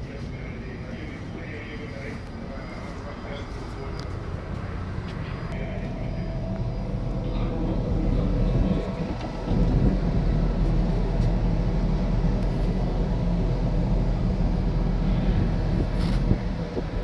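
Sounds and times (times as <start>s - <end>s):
faint machinery hum: 0.0s - 17.0s
strong wind buffeting microphone: 4.7s - 17.0s.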